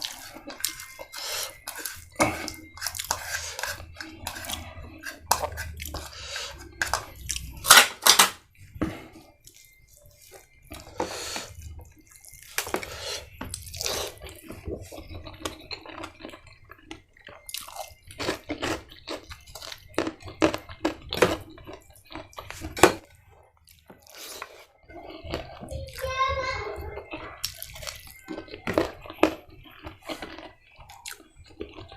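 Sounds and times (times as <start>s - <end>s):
wet chewing and mouth smacking: 0.0s - 7.7s, 9.2s - 26.0s, 27.0s - 31.9s.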